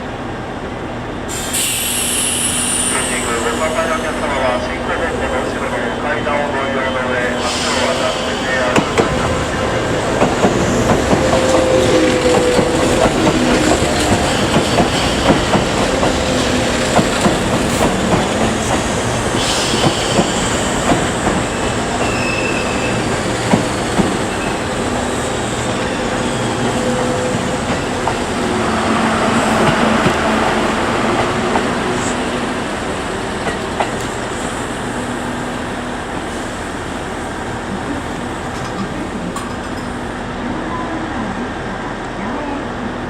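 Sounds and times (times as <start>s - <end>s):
train wheels clacking on rails: 7.5s - 34.4s
train wheels squealing: 22.0s - 23.1s.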